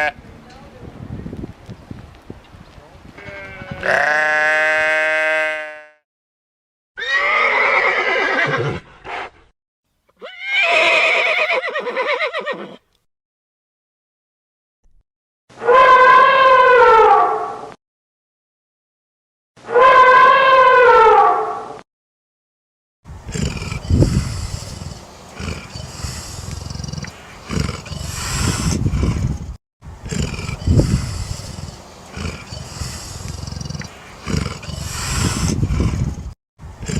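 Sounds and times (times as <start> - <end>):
horse neighing: 7.0 - 9.3, 10.2 - 12.8, 23.3 - 29.2, 30.1 - 36.1
big cat roaring: 23.3 - 29.4, 30.0 - 36.2
big cat growling: 23.3 - 36.9.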